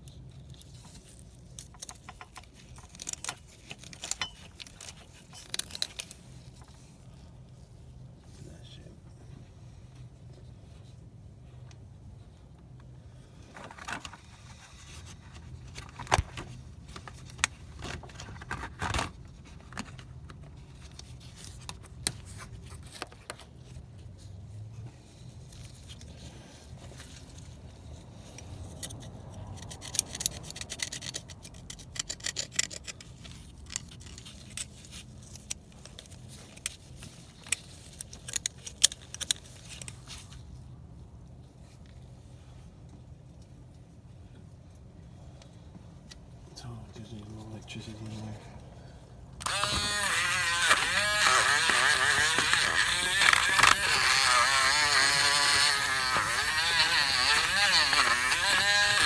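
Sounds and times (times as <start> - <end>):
metal tool scraping carbon: 49.4 - 59.0.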